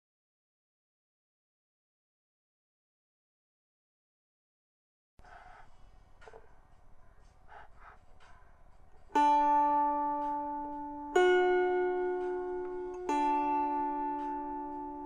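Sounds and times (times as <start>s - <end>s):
lyre strings plucked: 9.0s - 15.0s.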